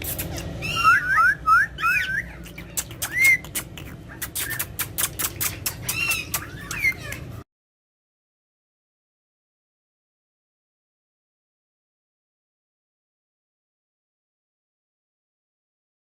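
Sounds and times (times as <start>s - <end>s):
parrots chirping whistle calls: 0.1s - 7.2s
sharp clicks: 2.7s - 7.2s.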